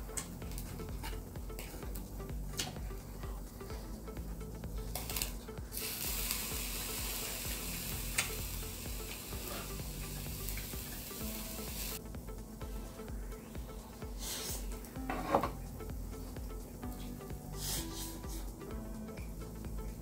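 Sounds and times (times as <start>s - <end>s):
beef sizzling on a grill: 4.9s - 12.0s.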